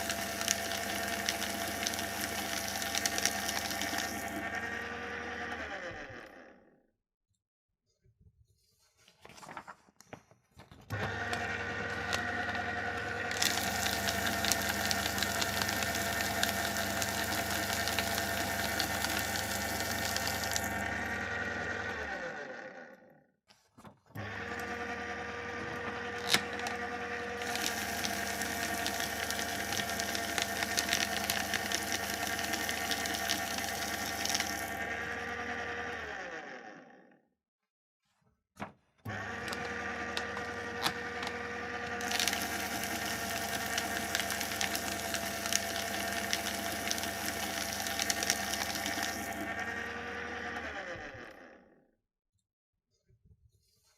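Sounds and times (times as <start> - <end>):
paper shredder grinding paper: 0.0 - 6.8, 10.7 - 37.2, 38.6 - 51.8
paper shredder motor humming: 0.0 - 6.8, 10.8 - 23.2, 23.8 - 37.2, 39.0 - 51.8.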